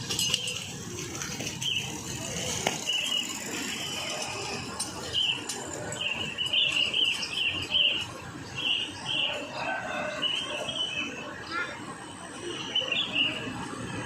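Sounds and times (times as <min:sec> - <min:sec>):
small birds chirping: 0:01.6 - 0:02.1, 0:05.1 - 0:09.5.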